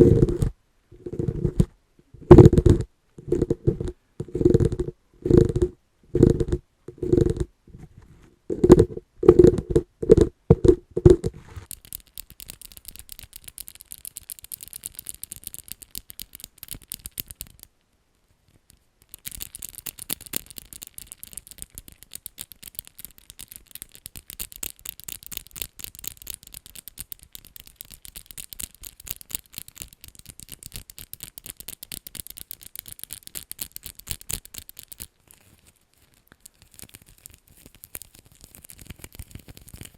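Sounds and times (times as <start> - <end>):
scratching: 0.0 - 17.8, 18.4 - 39.9
hollow knocks on an object: 8.5 - 11.3.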